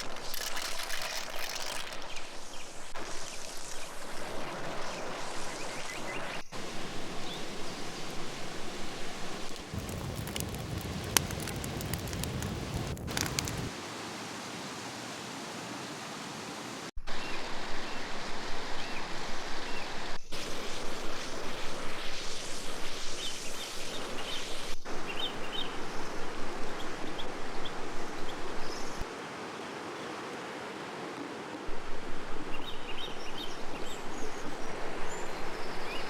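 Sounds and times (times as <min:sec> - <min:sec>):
river water rushing: 0:29.0 - 0:34.0.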